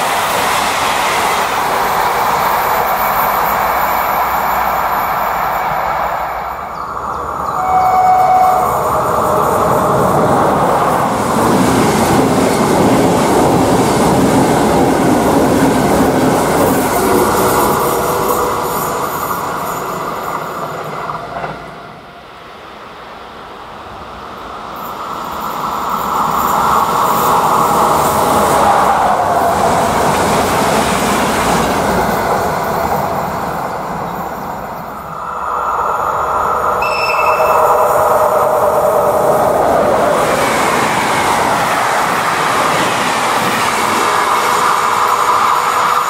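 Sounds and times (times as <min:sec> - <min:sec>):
passenger trains rushing past: 0:00.0 - 0:46.0
brief high-pitched tone: 0:07.5 - 0:09.0, 0:36.8 - 0:38.6.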